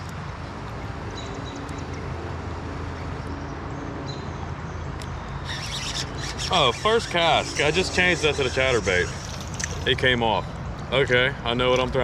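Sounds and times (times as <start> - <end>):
wind: 0.0 - 12.0
bird chirps: 5.4 - 9.9
river water flowing: 5.5 - 9.9.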